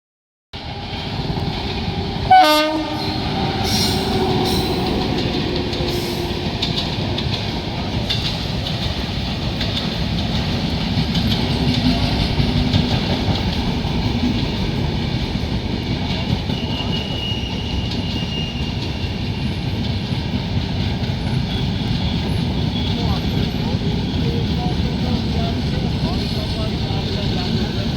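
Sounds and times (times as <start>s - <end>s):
train coaches rumbling: 0.6s - 27.9s
wheels clacking over rail joints: 0.8s - 27.9s
train horn blast: 2.3s - 7.0s.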